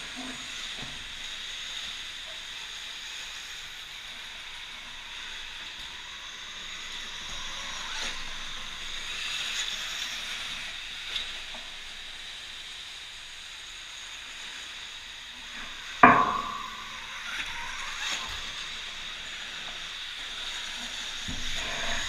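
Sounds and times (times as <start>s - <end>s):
electric dirt bike hiss and whine: 0.0s - 22.0s
loud sharp clunk: 16.0s - 16.8s.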